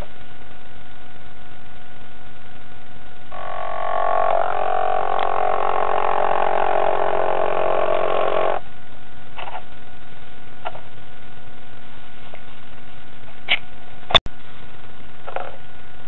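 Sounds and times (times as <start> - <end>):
electric motor buzzing: 3.3 - 8.6.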